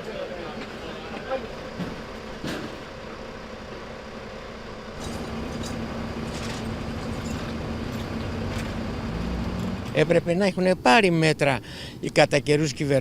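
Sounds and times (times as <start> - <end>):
engine hum: 0.0 - 10.4.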